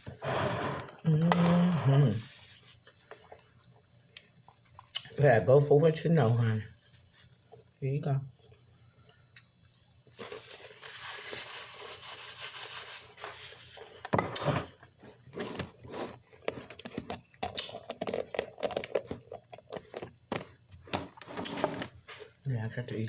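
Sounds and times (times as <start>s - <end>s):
crunching and chewing fruit: 0.1s - 5.2s, 8.4s - 11.4s, 14.6s - 22.9s.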